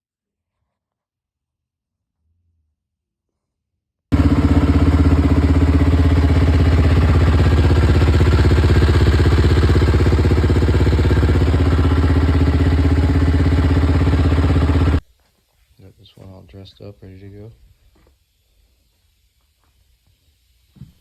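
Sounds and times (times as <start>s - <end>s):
quad engine running: 4.1s - 15.0s.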